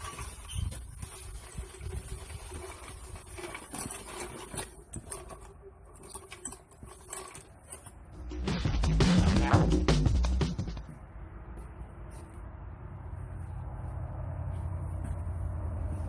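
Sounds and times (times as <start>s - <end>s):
shuffling: 0.0s - 8.7s, 11.6s - 16.0s.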